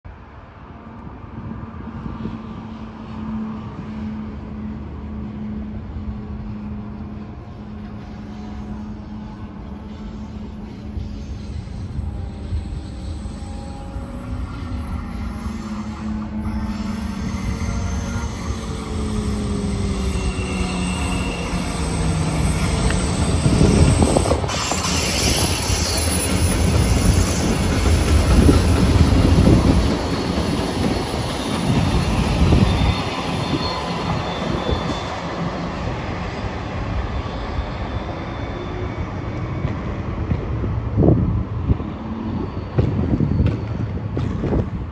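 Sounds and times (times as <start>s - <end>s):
diesel locomotive engine rumble: 0.1s - 44.9s
steel wheel squeal: 7.5s - 39.7s, 41.9s - 44.4s.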